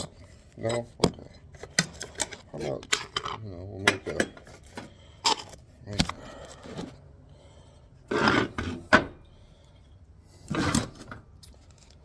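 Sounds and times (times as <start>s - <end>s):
phone scraping and rubbing: 8.0s - 8.9s, 10.4s - 11.1s.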